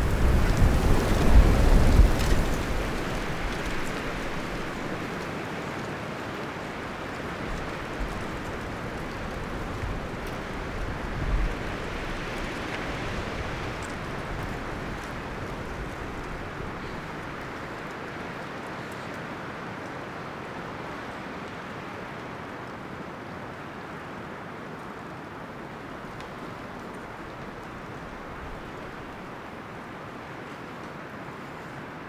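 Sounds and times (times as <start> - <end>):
leaves and branches rustling: 0.0 - 20.0, 25.1 - 32.0
wind gusting through trees: 0.0 - 21.3, 24.4 - 32.0.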